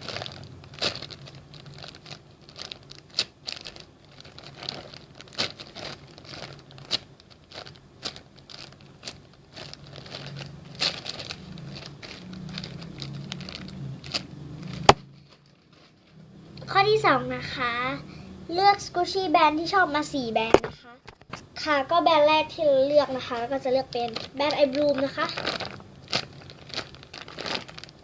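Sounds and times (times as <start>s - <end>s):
plastic crinkling: 0.0s - 17.0s, 22.7s - 28.0s
steady low hum: 0.0s - 28.0s.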